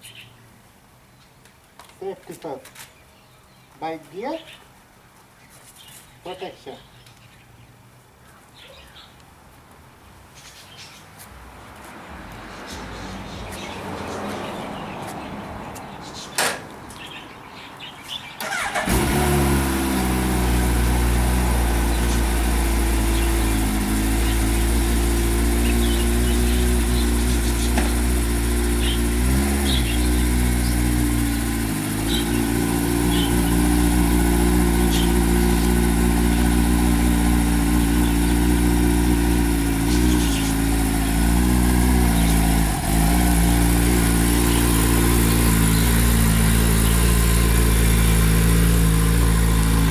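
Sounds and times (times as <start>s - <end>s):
motorcycle engine starting and idling: 17.8s - 49.9s.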